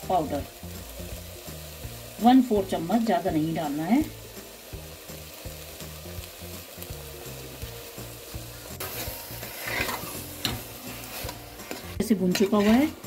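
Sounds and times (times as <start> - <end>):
soft background music: 0.0 - 13.0
vegetables sizzling in a pot: 0.0 - 13.0
steel spoon scraping a pot: 8.8 - 13.0.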